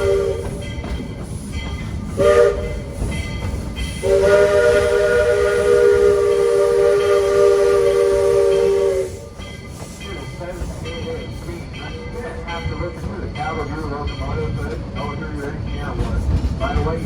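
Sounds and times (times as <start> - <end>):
steam whistle blasts: 0.0 - 0.7, 2.2 - 3.0, 3.9 - 9.3
train rumbling: 0.0 - 17.0.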